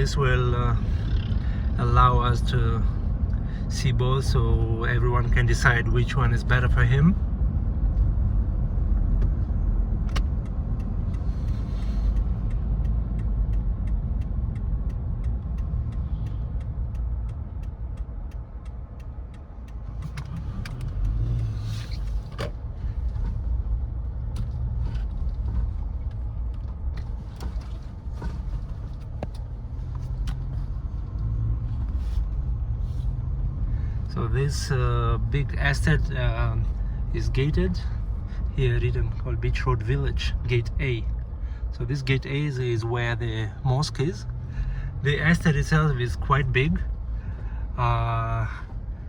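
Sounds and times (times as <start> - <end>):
car road and engine rumble: 0.0 - 49.0
small clicks and knocks: 10.0 - 22.6.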